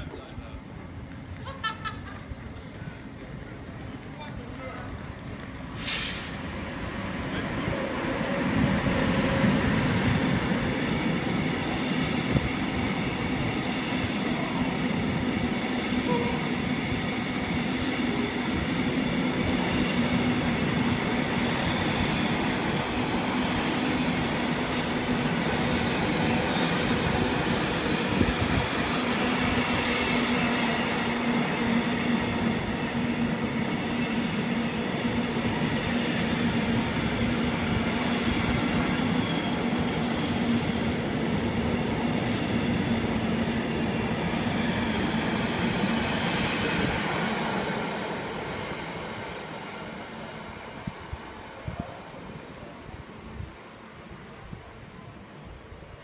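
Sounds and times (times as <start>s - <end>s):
low train hum: 0.0s - 56.0s
train wheels on rails: 0.0s - 56.0s.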